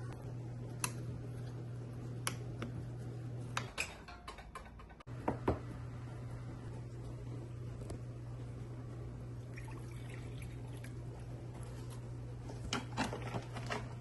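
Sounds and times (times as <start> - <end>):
steady low hum: 0.0 - 14.0
kitchen utensils clicking and tapping: 3.6 - 5.1.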